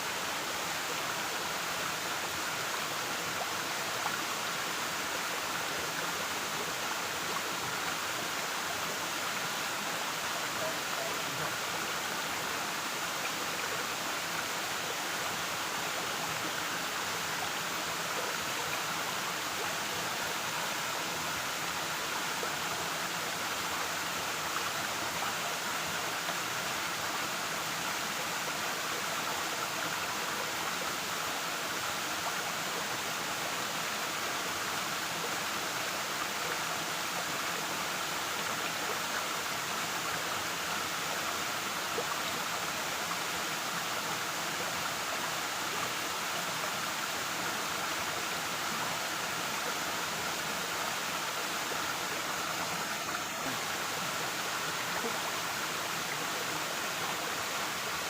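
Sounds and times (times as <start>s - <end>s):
waterfall rushing: 37.7s - 58.0s.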